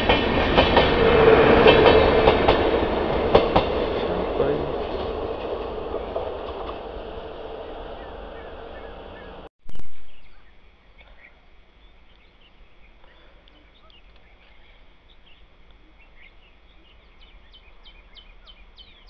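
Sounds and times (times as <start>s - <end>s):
passenger train rumble: 0.0s - 10.5s
birds chirping: 5.8s - 19.0s.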